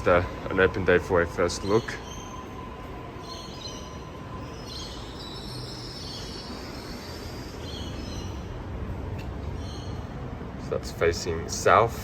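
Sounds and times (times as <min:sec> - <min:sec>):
train rumble: 0:00.0 - 0:12.0
train wheel squeal: 0:00.2 - 0:08.5.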